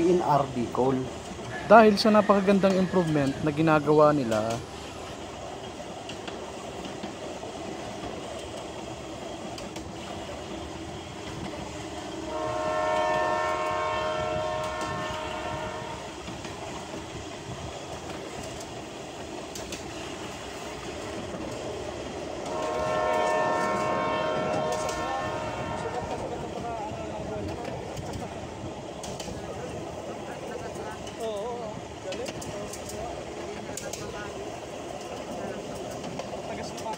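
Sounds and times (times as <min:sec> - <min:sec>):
train rumble and wheel clatter: 0:00.0 - 0:36.9
train horn blasts: 0:12.2 - 0:16.3, 0:22.4 - 0:26.4.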